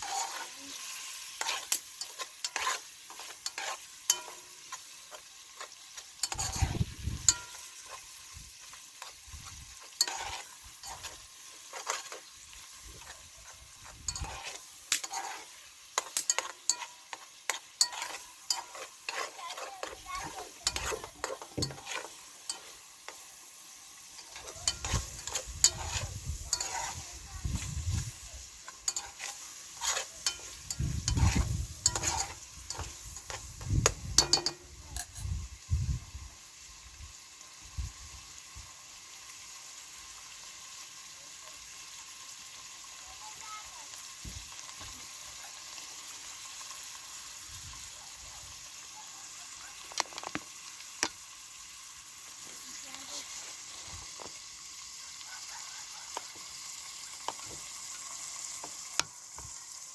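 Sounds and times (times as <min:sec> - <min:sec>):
stirring knocks and scraping: 0:00.0 - 0:00.6, 0:01.3 - 0:23.3, 0:24.0 - 0:35.2, 0:49.9 - 0:51.2, 0:57.2 - 0:57.7
food sizzling in a pan: 0:00.0 - 0:59.9.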